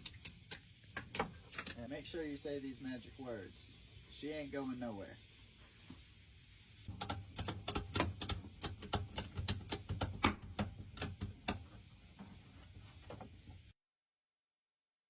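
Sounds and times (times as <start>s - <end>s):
ratchet strap clicking: 7.0s - 11.7s.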